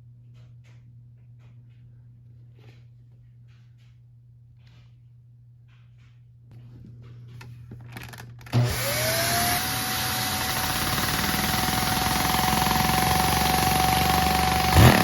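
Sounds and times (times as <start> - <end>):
small electric motor whining: 8.5 - 15.0.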